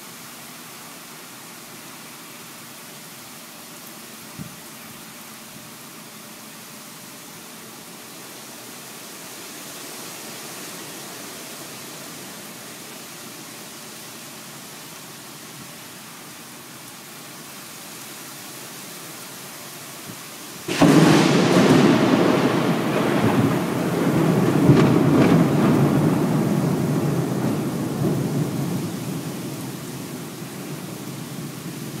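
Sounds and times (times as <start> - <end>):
steady rain hiss: 0.0 - 32.0
thunderclap rumbling: 20.7 - 32.0.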